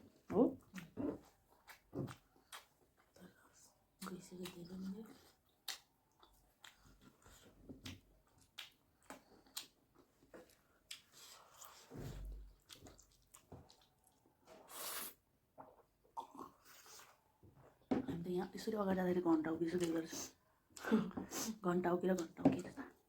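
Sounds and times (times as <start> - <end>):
person chewing noodles: 0.6 - 17.3.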